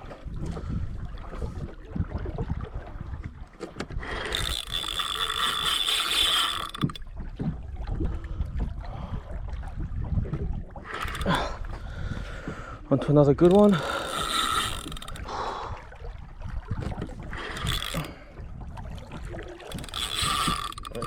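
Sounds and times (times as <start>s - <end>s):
fishing reel whirring and ratcheting: 3.8s - 7.1s, 10.8s - 11.8s, 13.3s - 15.5s, 16.8s - 18.3s, 19.6s - 21.0s.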